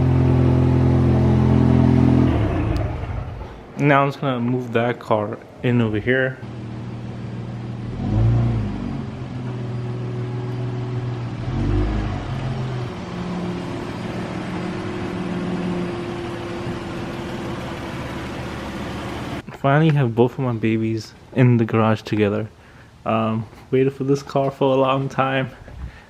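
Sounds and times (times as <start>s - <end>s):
car engine running: 0.0s - 3.7s, 6.5s - 19.4s
engine rev blips: 0.0s - 3.7s, 6.5s - 19.4s.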